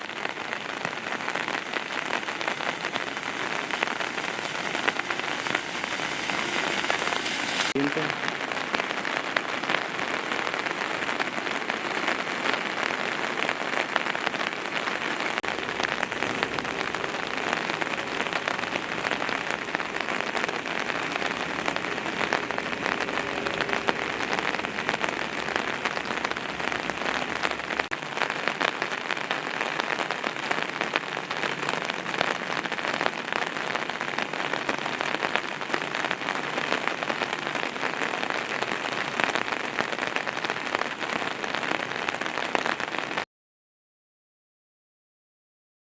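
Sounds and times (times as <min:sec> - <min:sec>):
heavy rain or churning water: 0:00.0 - 0:43.2.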